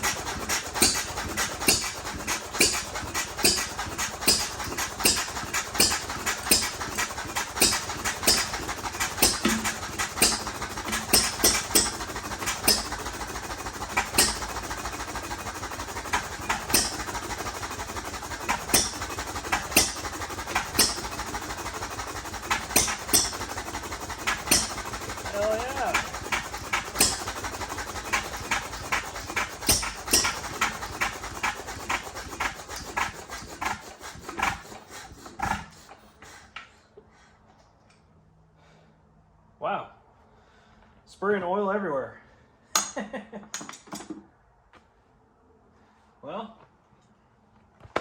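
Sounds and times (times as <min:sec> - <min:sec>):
engine exhaust popping: 0:00.0 - 0:36.0.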